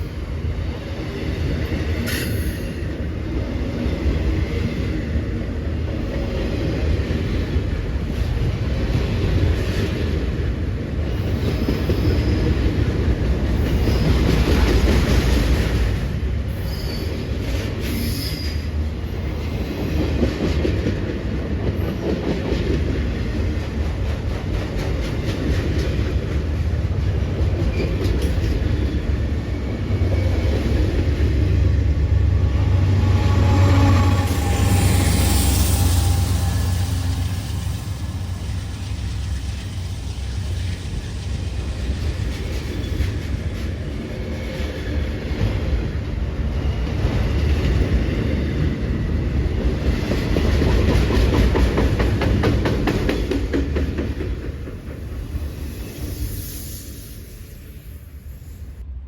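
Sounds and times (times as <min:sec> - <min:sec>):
freight train rumbling past: 0:00.0 - 0:59.0
high wheel squeals: 0:32.5 - 0:43.6.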